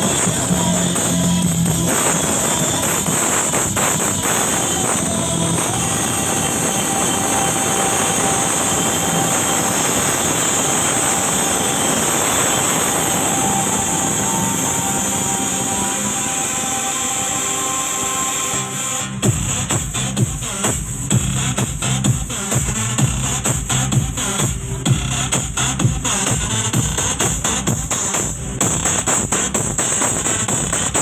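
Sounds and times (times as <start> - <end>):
loud music through sound system: 0.0 - 31.0.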